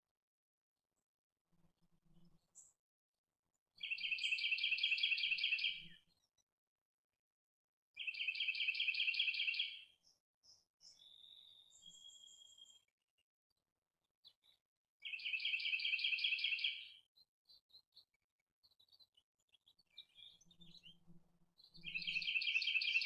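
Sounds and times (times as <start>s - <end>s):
songbird trilling: 21.8s - 23.0s.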